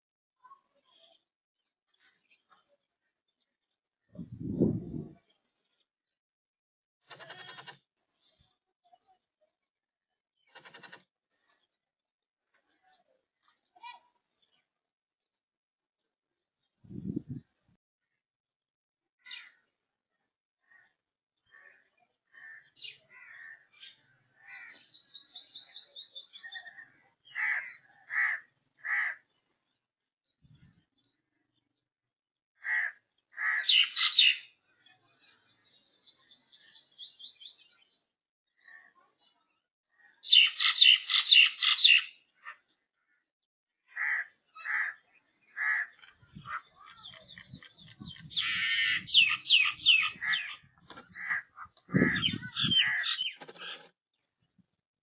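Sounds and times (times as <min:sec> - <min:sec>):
loud bird calls: 0:10.4 - 0:11.1, 0:20.6 - 0:29.5, 0:32.6 - 0:38.0, 0:39.9 - 0:53.9
bird chirps: 0:22.6 - 0:27.4, 0:33.5 - 0:39.4, 0:40.0 - 0:43.3, 0:44.5 - 0:53.9
fast high bird trill: 0:45.6 - 0:50.6.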